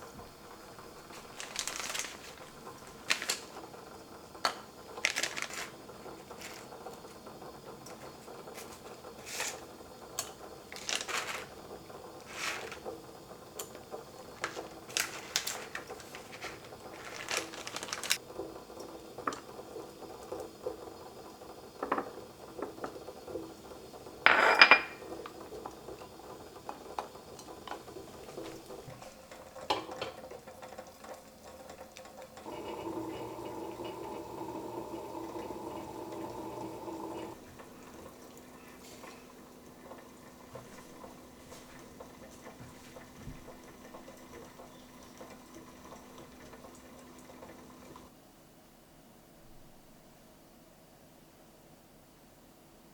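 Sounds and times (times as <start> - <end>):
kitchenware clatter: 7.9 - 13.0, 13.6 - 18.2, 21.8 - 23.1, 24.2 - 25.4, 27.3 - 30.8
dishes and utensils clinking: 24.3 - 25.2.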